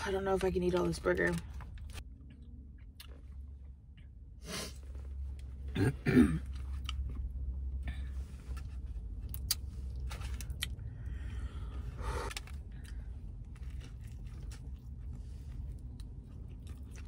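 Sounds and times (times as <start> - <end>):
steady low hum: 0.0 - 17.0
chewing with wet mouth clicks: 12.3 - 17.0.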